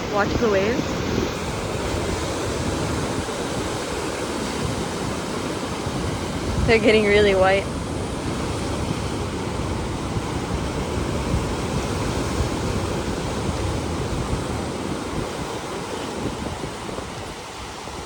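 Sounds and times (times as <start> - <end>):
surf breaking on rocks: 0.0 - 18.0
wind on microphone: 0.0 - 18.0.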